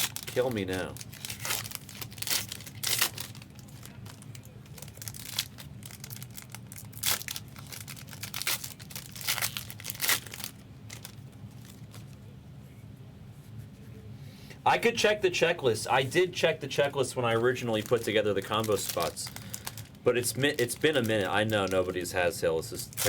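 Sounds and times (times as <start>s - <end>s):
card pack wrappers tearing and crinkling: 0.0s - 12.2s, 17.2s - 22.1s, 22.7s - 23.0s.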